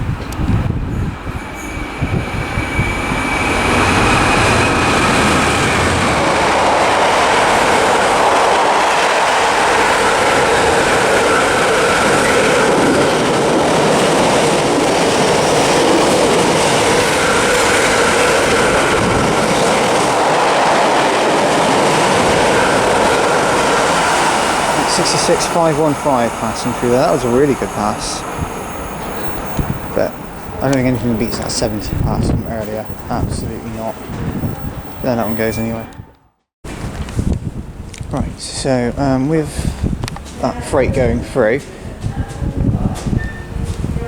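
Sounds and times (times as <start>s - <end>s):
diesel locomotive engine rumble: 0.0s - 36.1s
freight wagons rolling on rails: 1.0s - 35.8s.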